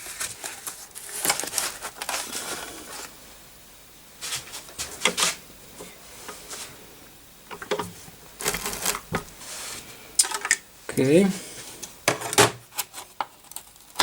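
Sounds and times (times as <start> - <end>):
hands handling computer hardware: 7.5 - 9.3.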